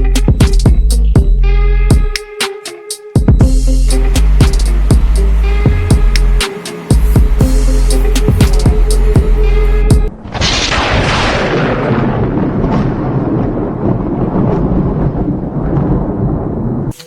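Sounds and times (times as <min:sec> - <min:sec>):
music with drum hits: 0:00.0 - 0:10.1
loud boom with noisy rush: 0:03.5 - 0:16.8.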